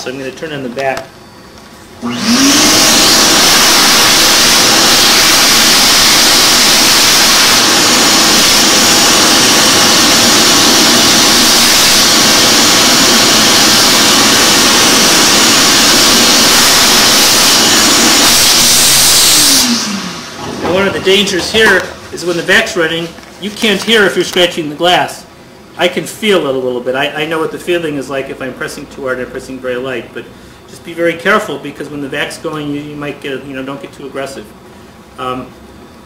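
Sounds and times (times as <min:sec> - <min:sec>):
vacuum cleaner running: 0:01.2 - 0:25.3.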